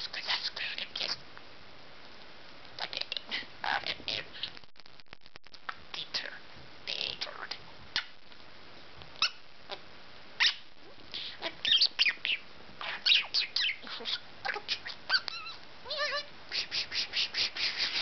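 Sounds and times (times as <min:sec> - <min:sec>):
budgerigar chirping: 0:11.2 - 0:16.2.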